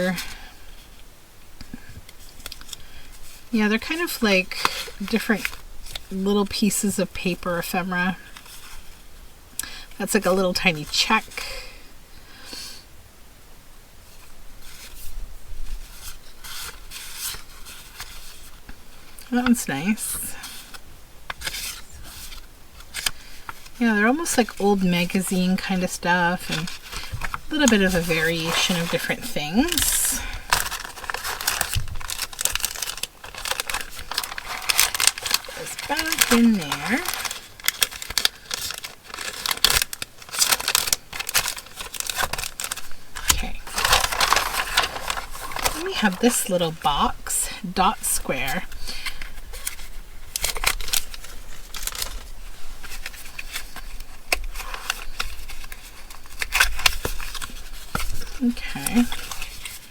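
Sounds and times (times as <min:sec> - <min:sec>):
paper rustling and rubbing: 0:14.1 - 0:59.9.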